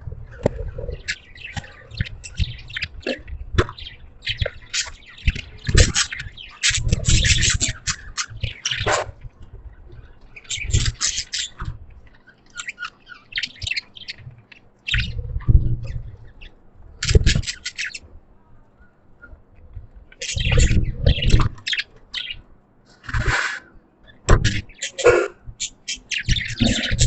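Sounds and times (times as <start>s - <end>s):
budgerigars chirping and squawking: 0.3s - 18.1s, 19.3s - 27.0s.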